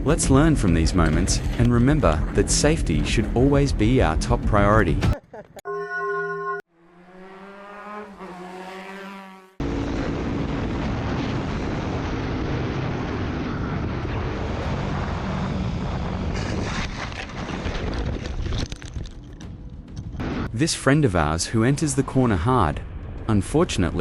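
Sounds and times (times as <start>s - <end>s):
rising pitched tone: 5.7s - 9.6s
motorcycle running at speed: 6.7s - 17.8s
wind rushing on microphone: 9.7s - 18.8s.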